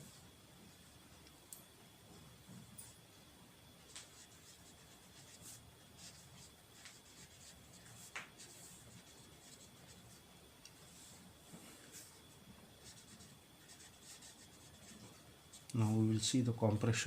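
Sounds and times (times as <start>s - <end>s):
pen scratching on paper: 12.8s - 15.0s.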